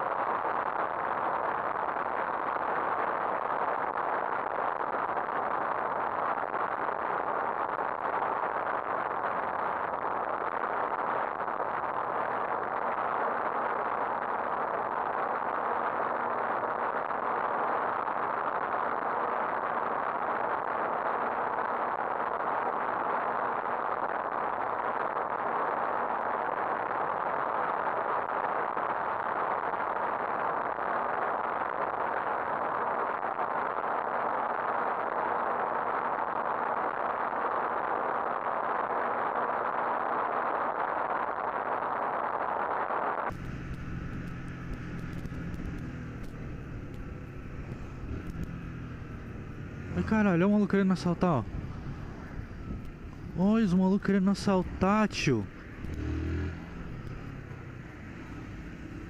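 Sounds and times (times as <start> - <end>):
motorcycle wind and road noise: 0.0 - 42.4, 43.3 - 59.0
motorcycle engine running: 43.3 - 59.0.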